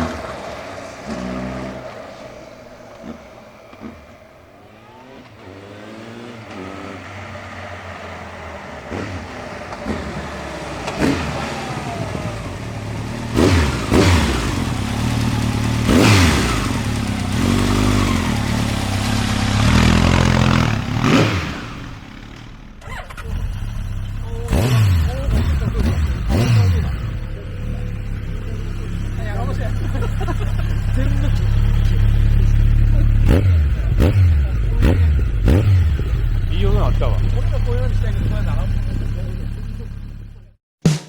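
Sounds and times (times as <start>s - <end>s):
motorcycle engine revving: 0.0s - 40.6s.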